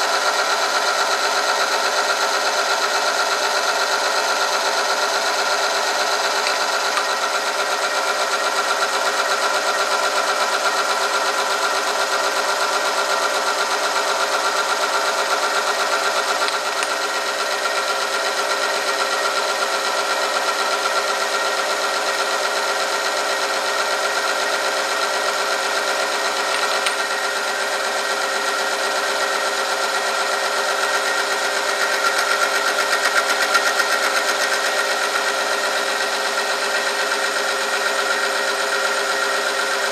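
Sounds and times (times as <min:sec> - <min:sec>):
test machine mechanical hum: 0:00.0 - 0:09.7, 0:13.1 - 0:20.5, 0:22.6 - 0:30.3.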